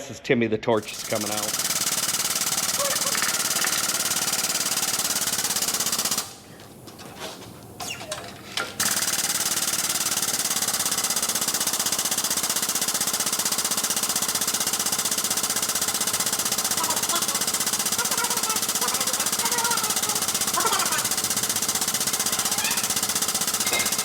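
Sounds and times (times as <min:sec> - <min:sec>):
rapid mechanical hammering: 0:00.8 - 0:24.0.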